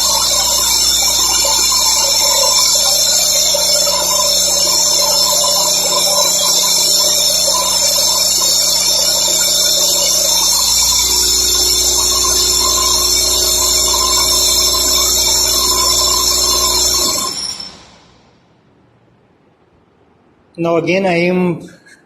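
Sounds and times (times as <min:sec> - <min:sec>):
two-stroke engine whining under load: 0:00.0 - 0:17.4.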